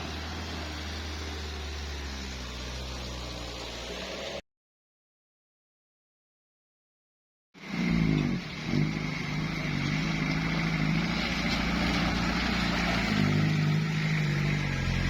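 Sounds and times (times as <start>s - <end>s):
engine revving under load: 7.6s - 15.0s.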